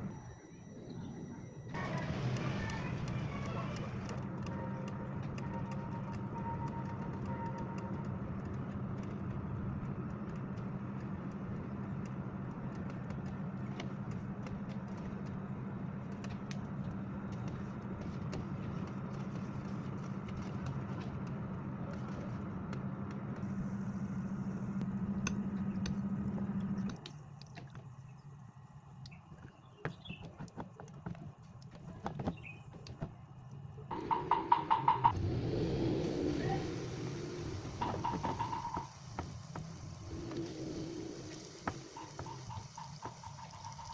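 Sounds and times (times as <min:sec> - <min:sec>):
motor humming: 0:31.7 - 0:43.9.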